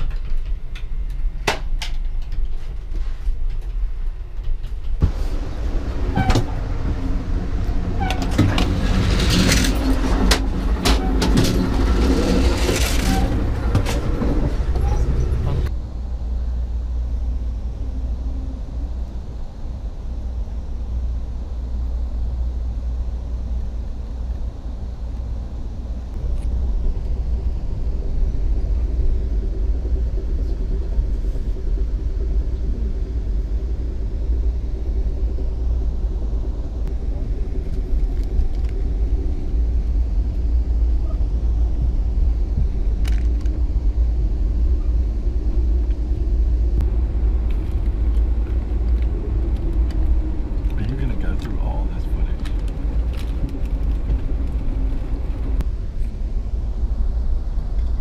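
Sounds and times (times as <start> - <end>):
train rumbling inside carriage: 0.0 - 58.0
faint steady hum: 14.8 - 58.0
light track clicks: 46.8 - 56.2.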